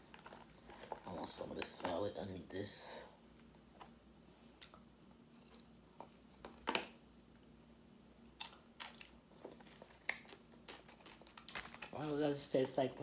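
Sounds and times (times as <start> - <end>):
person chewing crisp crunches: 0.0 - 1.3, 4.5 - 12.0.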